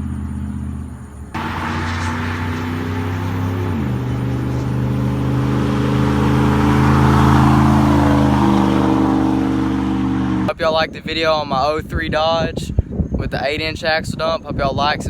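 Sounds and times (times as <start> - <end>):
truck engine idling: 0.0 - 10.5.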